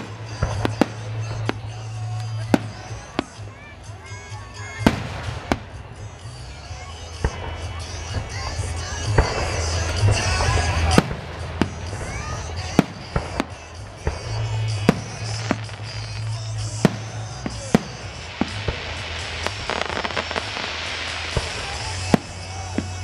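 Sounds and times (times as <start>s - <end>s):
crackling firework stars: 0.0s - 23.0s
music: 0.0s - 23.0s
firework shell bursts: 9.0s - 23.0s.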